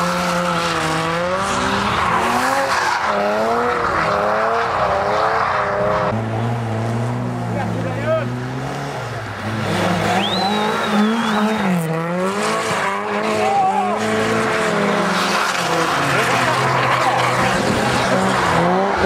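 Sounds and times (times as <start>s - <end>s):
car engine revving: 0.0s - 19.0s
spectators' voices: 6.3s - 19.0s
high whistle: 10.1s - 11.7s.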